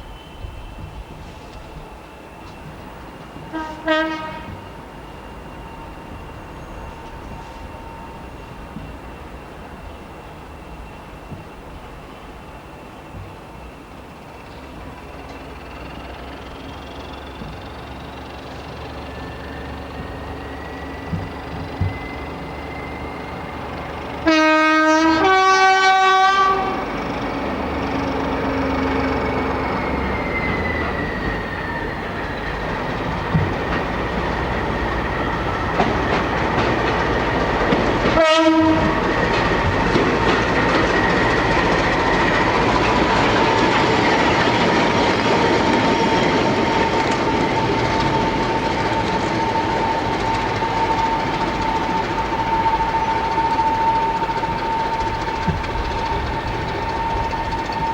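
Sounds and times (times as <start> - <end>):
train running noise with whine: 0.0 - 57.9
locomotive two-tone horn: 3.5 - 4.8, 24.1 - 27.0, 37.7 - 40.6.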